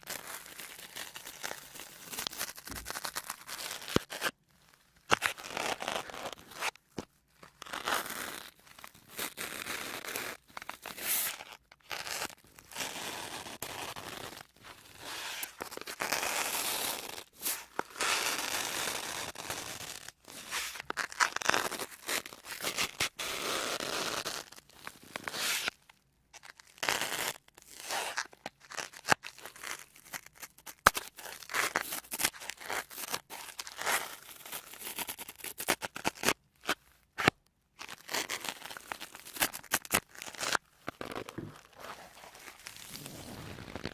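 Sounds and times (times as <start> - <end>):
sponge scratchy strokes: 41.5 - 43.9.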